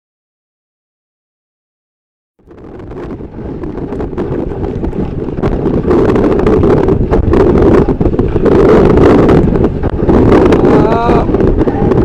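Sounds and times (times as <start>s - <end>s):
wind buffeting microphone: 2.4s - 12.0s.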